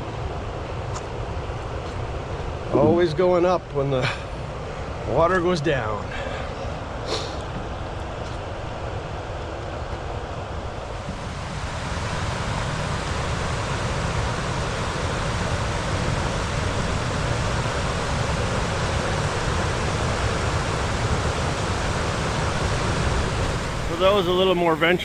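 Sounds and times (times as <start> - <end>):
water rushing over waterfall: 10.9 - 25.0.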